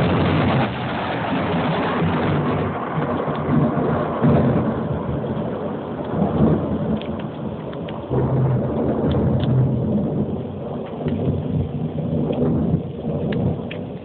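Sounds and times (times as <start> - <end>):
steady rain: 0.0 - 14.0
thunder rumbling: 0.0 - 14.0.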